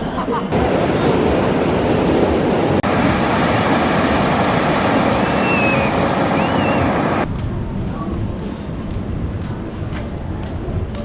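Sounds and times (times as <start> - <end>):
ocean surf washing on beach: 0.5 - 7.3
wind buffeting microphone: 0.5 - 7.3.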